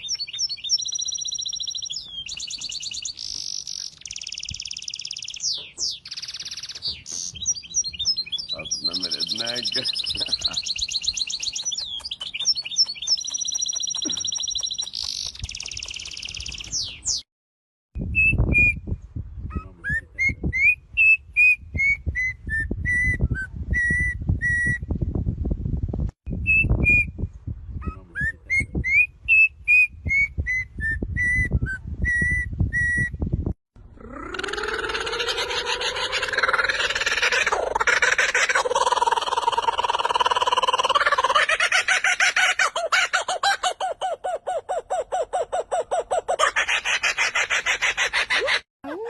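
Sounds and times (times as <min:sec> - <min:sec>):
bird warbling trill: 0:00.0 - 0:17.2.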